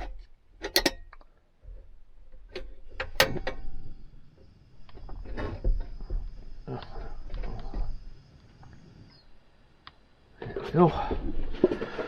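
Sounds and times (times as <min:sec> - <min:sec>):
objects clicking and knocking: 0:00.0 - 0:08.1.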